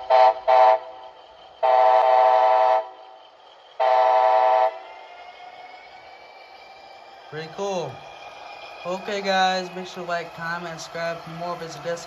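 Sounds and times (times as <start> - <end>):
model locomotive horn: 0.0 - 0.9, 1.6 - 2.9, 3.8 - 4.8
faint steady engine sound: 0.0 - 12.0.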